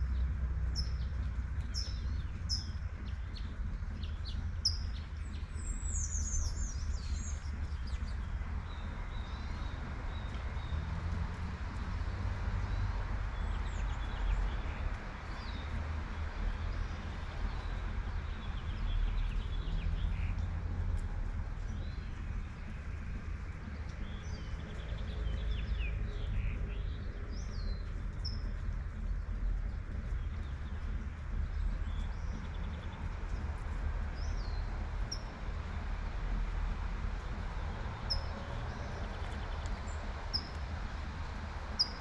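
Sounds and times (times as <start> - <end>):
distant traffic rumble: 0.0 - 42.0
light rain: 0.0 - 42.0.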